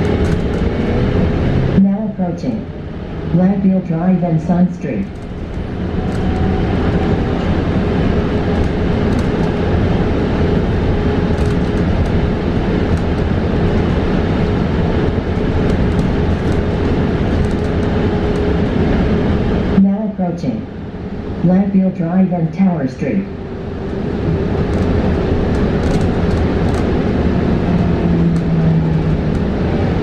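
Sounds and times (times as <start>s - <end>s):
road and tyre rumble: 0.0s - 19.8s, 20.6s - 21.5s, 23.2s - 30.0s.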